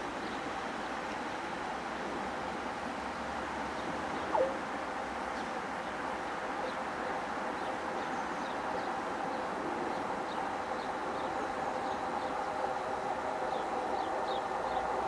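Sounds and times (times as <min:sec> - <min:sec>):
faint steady whine: 0:00.0 - 0:15.0
small birds chirping: 0:03.8 - 0:04.6.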